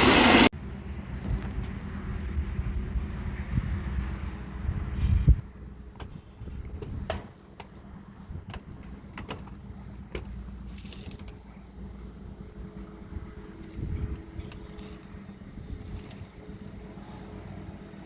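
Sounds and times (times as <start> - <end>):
spray hissing: 0.0 - 0.5
steady low hum: 0.0 - 18.0
water dripping and trickling: 10.6 - 11.6, 13.6 - 18.0.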